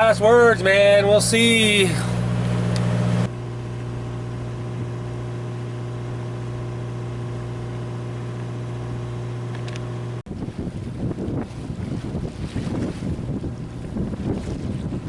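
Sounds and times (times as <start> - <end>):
diesel boat engine droning: 0.0 - 12.3.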